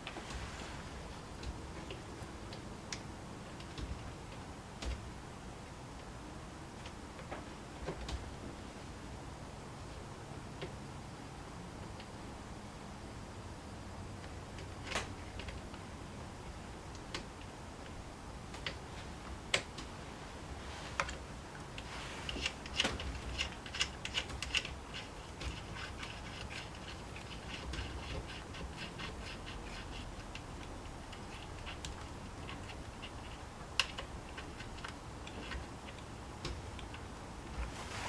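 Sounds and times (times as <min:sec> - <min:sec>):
tools and parts clicking: 0:21.8 - 0:37.0.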